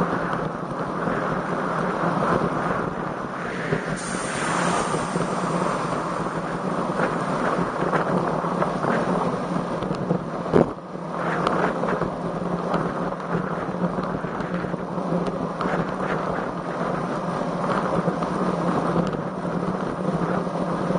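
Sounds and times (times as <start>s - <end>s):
wind buffeting microphone: 0.0s - 20.9s
low hum: 1.8s - 10.1s.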